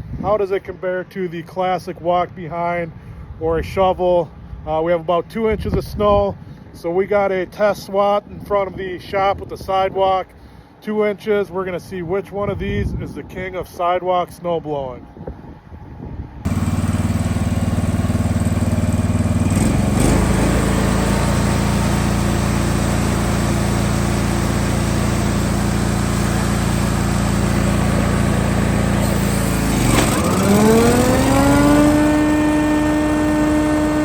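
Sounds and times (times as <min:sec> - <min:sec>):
rising engine whine: 0:16.4 - 0:34.0
snow-clearing machine engine running: 0:16.5 - 0:34.0.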